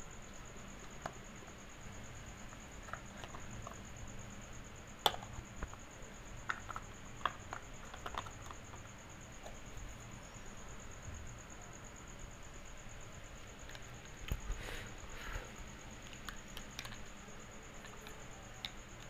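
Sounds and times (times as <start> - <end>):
plastic toy pots clicking: 6.4 - 8.9.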